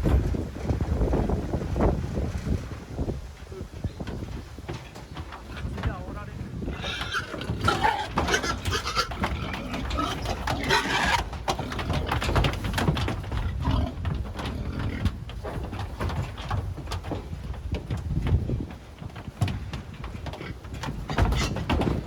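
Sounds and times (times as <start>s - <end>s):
trotters clattering on floor: 0.0s - 22.0s
pigs squealing and grunting: 6.6s - 12.5s.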